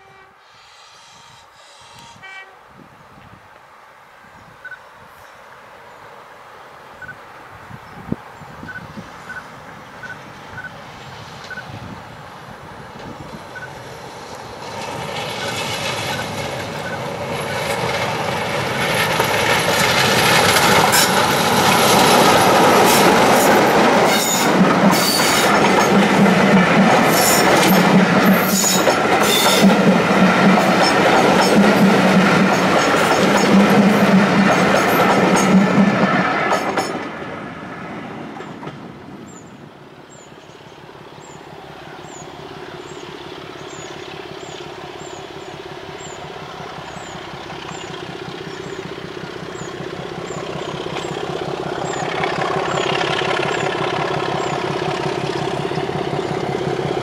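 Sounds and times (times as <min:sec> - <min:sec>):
diesel locomotive engine: 0:07.0 - 0:57.0
wheels clattering over rail joints: 0:12.8 - 0:37.4, 0:42.0 - 0:57.0.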